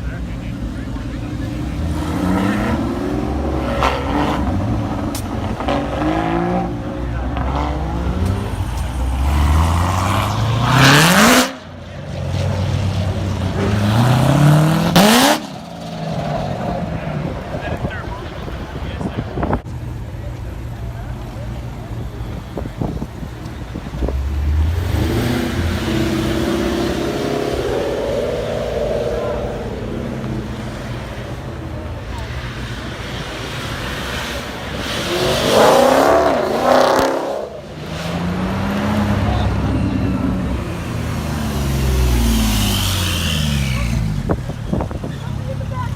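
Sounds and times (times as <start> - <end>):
car engine revving hard: 1.1 - 11.6, 13.5 - 16.7, 24.2 - 31.5, 32.5 - 44.8.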